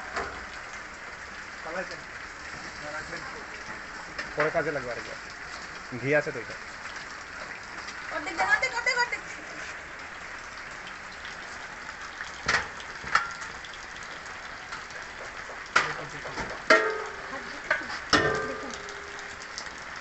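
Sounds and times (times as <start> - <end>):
utensil clanking on pot: 15.7 - 19.2.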